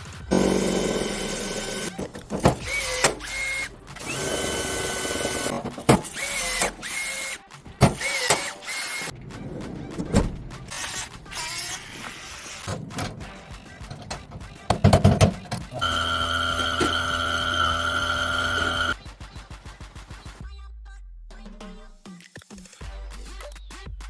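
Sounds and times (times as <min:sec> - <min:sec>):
clicks and knocks: 0:00.3 - 0:07.0, 0:12.6 - 0:19.0
power tool motor whining: 0:00.3 - 0:09.1, 0:15.5 - 0:19.0.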